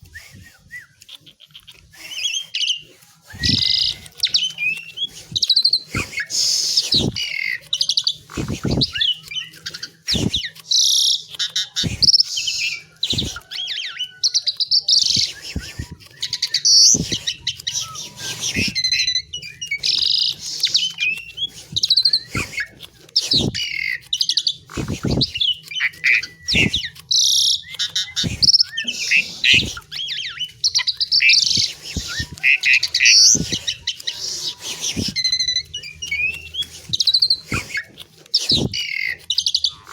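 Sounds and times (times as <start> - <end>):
myna whistles and chatter: 0.0 - 39.9
sharp bird clicks: 0.1 - 39.9.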